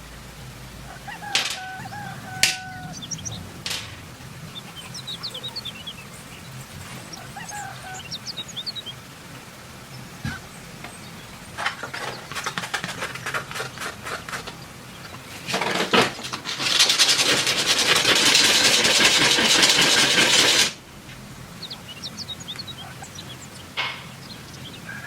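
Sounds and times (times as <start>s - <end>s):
tool rasping loudly: 16.0s - 20.8s.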